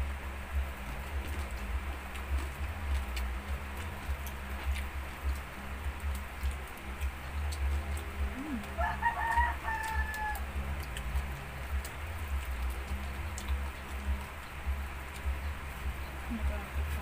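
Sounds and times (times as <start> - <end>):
rooster crowing: 8.8 - 10.5.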